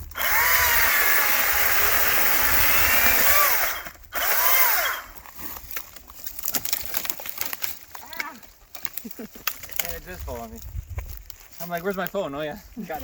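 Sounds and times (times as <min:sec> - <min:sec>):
chainsaw cutting tree trunk: 0:00.0 - 0:07.9
wood cracking and rustling: 0:00.0 - 0:13.0.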